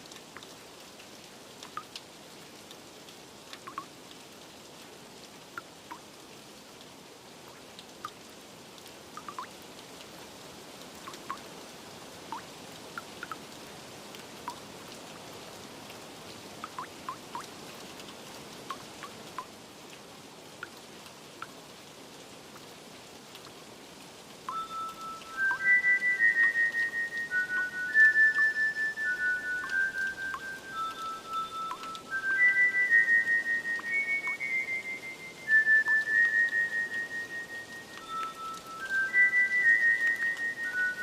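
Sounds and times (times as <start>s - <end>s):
rain hiss: 0.0s - 41.0s
water drops plinking: 3.6s - 3.9s, 9.2s - 9.5s, 11.1s - 11.4s, 16.6s - 17.5s, 24.5s - 41.0s
chime-like bell music: 24.5s - 26.6s, 29.3s - 32.1s, 38.0s - 39.6s.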